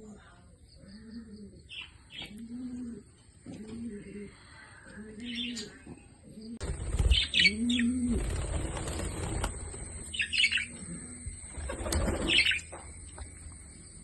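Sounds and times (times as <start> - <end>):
low cooing call: 0.8 - 6.0
birds flapping wings: 6.6 - 10.7, 11.5 - 12.7.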